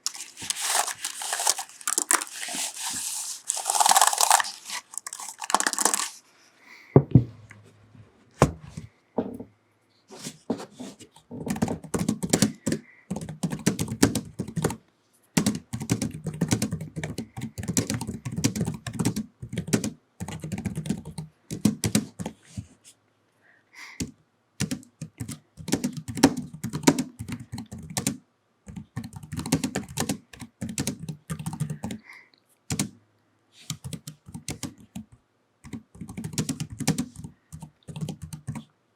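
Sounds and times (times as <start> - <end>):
brief rustling: 0.0 - 6.2
keyboard typing: 11.4 - 14.8, 15.4 - 22.4, 24.6 - 32.0, 32.7 - 32.9, 33.7 - 38.7.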